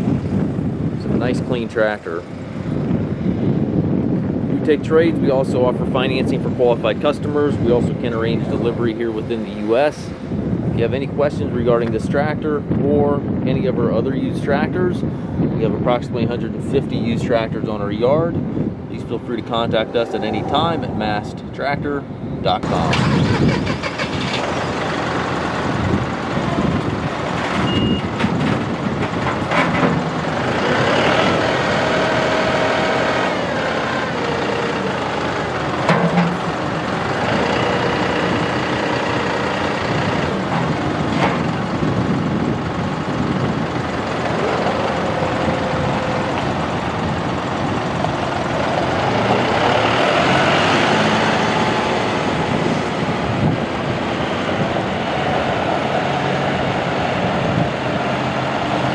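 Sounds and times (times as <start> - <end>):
tractor diesel engine running: 17.6 - 58.9.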